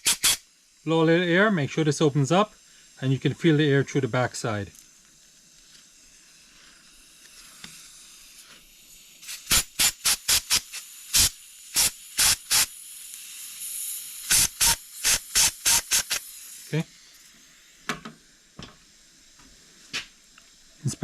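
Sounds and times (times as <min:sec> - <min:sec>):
air blow gun blasts: 0:00.0 - 0:00.4, 0:09.2 - 0:12.8, 0:14.2 - 0:16.4
faint air hiss: 0:00.0 - 0:21.0.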